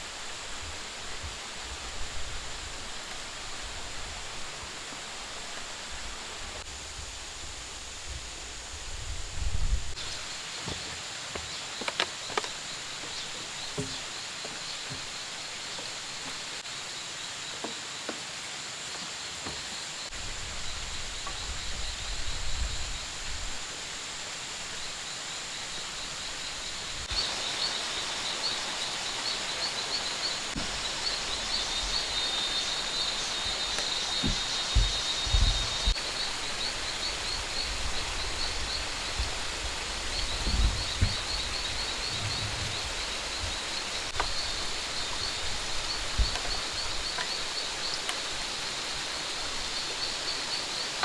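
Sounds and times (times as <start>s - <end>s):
high insect buzz: 6.3s - 51.0s
faint knocks: 10.6s - 16.4s
low rumbles: 40.3s - 44.2s.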